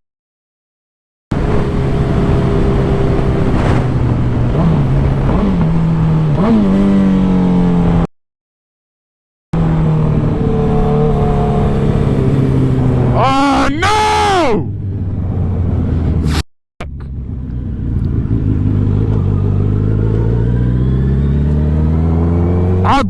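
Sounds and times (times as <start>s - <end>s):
motorcycle engine revving: 1.3s - 8.1s, 9.6s - 13.2s, 14.7s - 23.0s.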